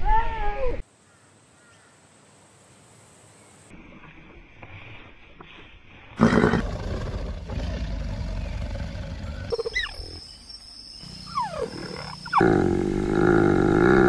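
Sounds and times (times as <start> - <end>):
big cat roaring: 6.2 - 9.5, 11.6 - 14.0.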